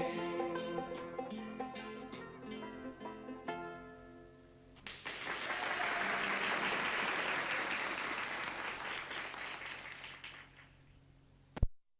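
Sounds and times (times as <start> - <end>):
audience applauding: 4.8 - 10.8.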